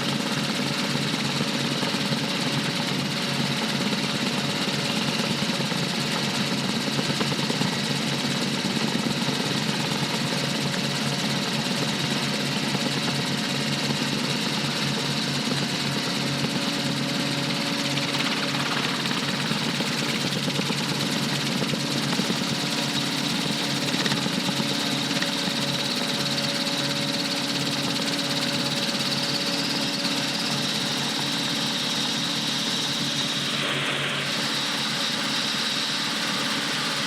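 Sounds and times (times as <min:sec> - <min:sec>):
helicopter engine and rotor: 0:00.0 - 0:37.0.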